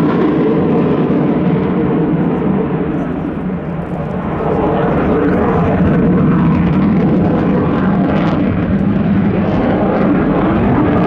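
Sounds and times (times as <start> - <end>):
fighter jet engines roaring: 0.0 - 11.0.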